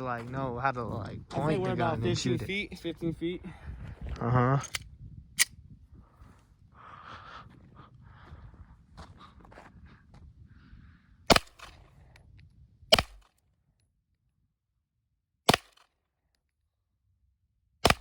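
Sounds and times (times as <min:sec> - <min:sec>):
gunshots: 0:11.3 - 0:11.8, 0:12.9 - 0:13.3, 0:15.5 - 0:15.8.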